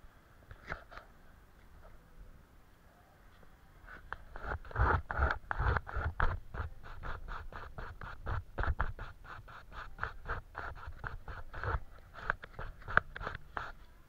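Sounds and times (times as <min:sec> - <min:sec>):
paintbrush scratching on paper: 0:03.9 - 0:14.0.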